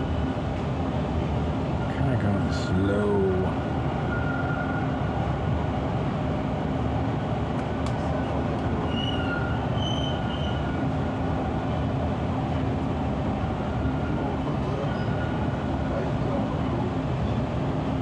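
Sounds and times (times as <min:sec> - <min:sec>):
subway train rumbling: 0:00.0 - 0:18.0
high wheel squeals: 0:04.0 - 0:05.0, 0:08.8 - 0:10.9, 0:14.8 - 0:15.5.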